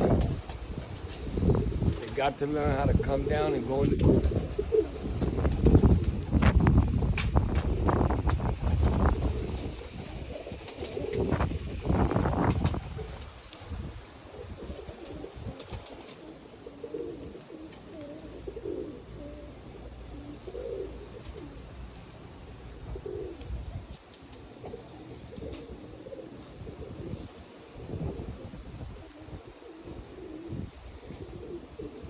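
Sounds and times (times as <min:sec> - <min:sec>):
wind on microphone: 0:00.0 - 0:16.0, 0:22.8 - 0:24.0, 0:25.2 - 0:32.0
pigeons cooing: 0:00.0 - 0:32.0.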